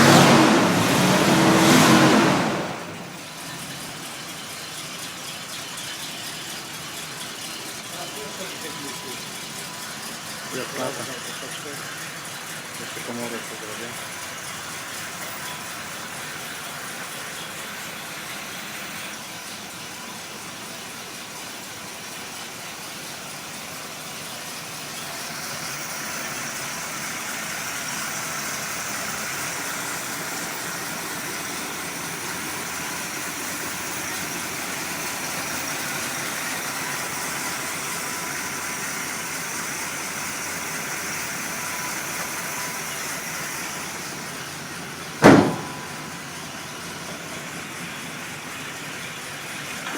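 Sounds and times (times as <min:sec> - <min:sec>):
car engine idling: 0:00.0 - 0:49.9
sharp loud thump: 0:45.2 - 0:46.2.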